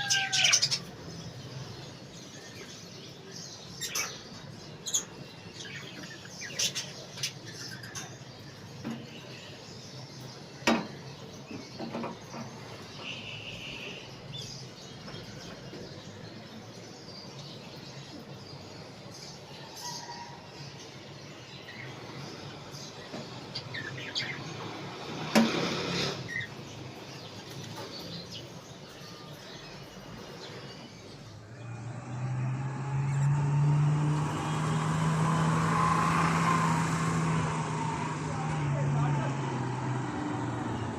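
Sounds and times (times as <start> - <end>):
budgerigars chirping: 0.0 - 1.0.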